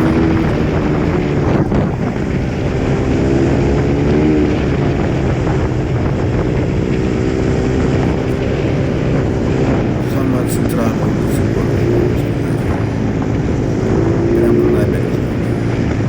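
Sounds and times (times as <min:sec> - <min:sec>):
motorbike engine running: 0:00.0 - 0:16.0.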